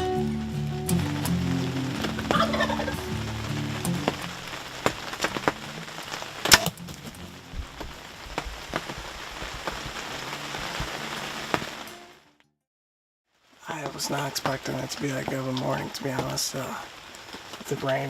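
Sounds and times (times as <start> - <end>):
heavy rain: 0.0 - 12.3, 13.4 - 18.0
loud sharp crack: 0.9 - 10.1.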